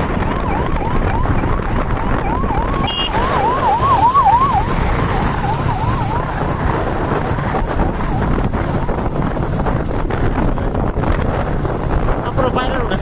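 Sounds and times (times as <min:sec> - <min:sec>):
road and engine rumble: 0:00.0 - 0:13.0
fast yelping siren: 0:00.2 - 0:06.8.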